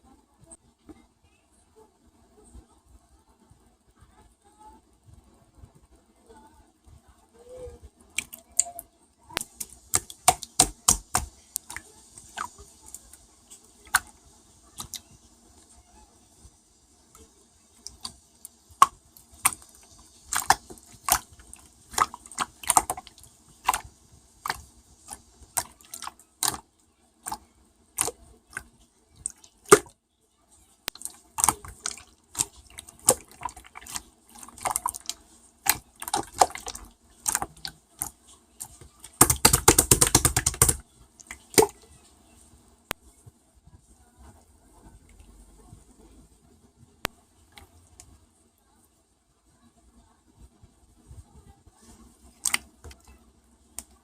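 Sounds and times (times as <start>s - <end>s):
slime squished by hand: 9.4s - 13.1s, 13.8s - 15.1s, 17.8s - 26.6s, 27.2s - 27.4s, 28.0s - 29.9s, 30.9s - 41.8s, 52.3s - 53.0s.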